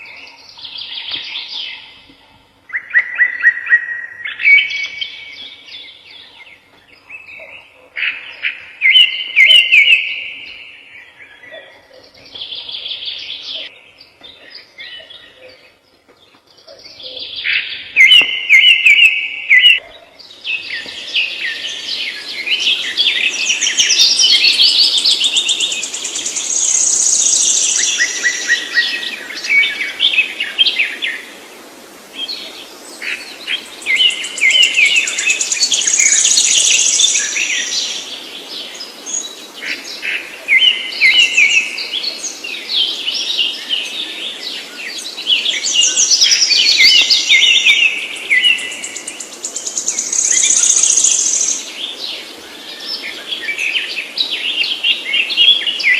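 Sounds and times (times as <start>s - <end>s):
songbird twittering: 0.0s - 31.3s, 32.3s - 55.9s.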